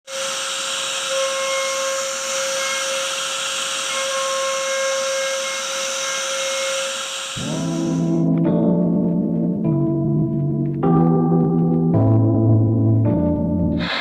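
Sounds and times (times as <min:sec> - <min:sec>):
router spindle cutting wood: 0:00.1 - 0:08.3.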